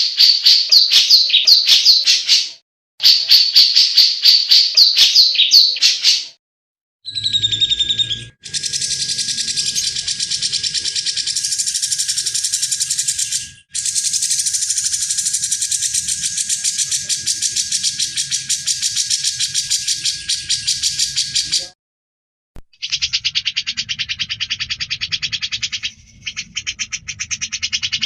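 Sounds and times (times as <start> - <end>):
bird rattling chatter: 8.4 - 21.6.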